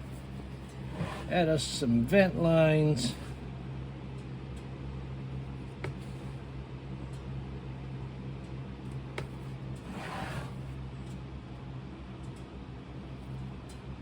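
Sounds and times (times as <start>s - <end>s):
steady low hum: 0.0s - 14.0s
tool scraping sand: 0.8s - 1.4s, 9.8s - 10.6s.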